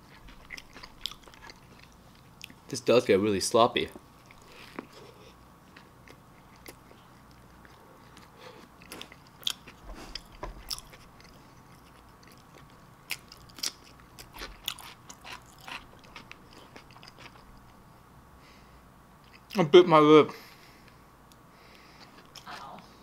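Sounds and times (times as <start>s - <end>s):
person chewing food: 0.0s - 2.7s, 3.9s - 17.9s, 19.2s - 19.6s, 20.8s - 22.6s.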